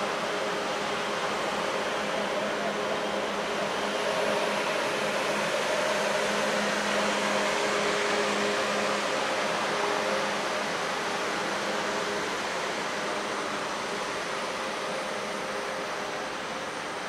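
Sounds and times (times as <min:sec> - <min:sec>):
train wheel and air rush: 0:00.0 - 0:17.0.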